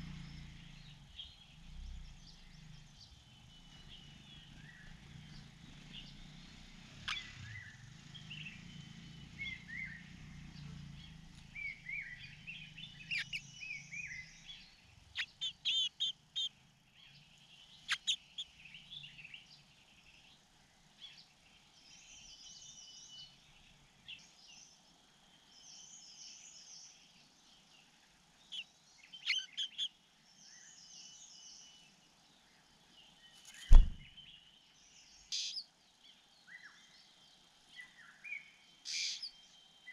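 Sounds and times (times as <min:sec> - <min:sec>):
small birds chirping: 0:00.0 - 0:39.9
loud thump: 0:33.6 - 0:34.1.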